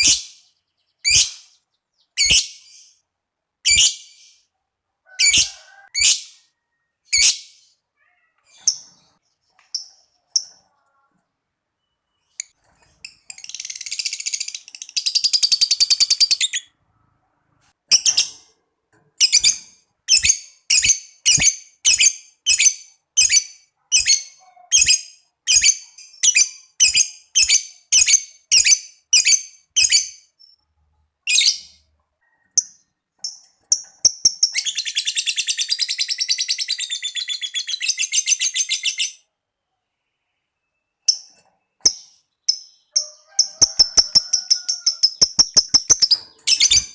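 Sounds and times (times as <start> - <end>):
lovebird chattering and chirping: 0.0 - 3.0, 11.8 - 16.8, 19.2 - 30.4, 32.5 - 39.2, 41.0 - 46.9.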